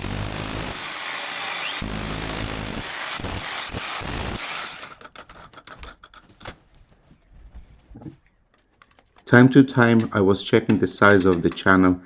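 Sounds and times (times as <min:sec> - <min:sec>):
power tool chiselling wall: 0:00.0 - 0:06.1.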